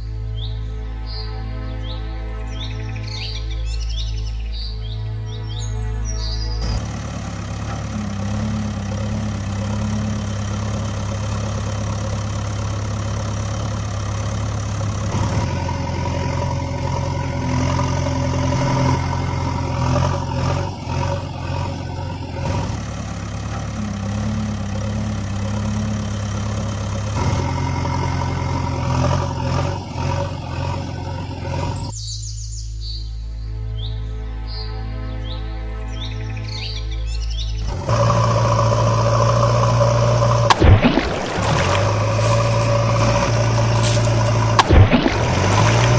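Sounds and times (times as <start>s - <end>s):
vehicle engine running: 4.8s - 32.6s, 37.4s - 45.9s.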